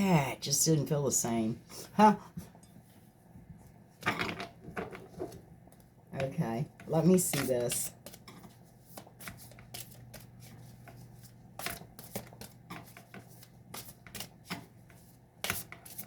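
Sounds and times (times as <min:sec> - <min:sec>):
cards being shuffled by hand: 0:07.3 - 0:16.0.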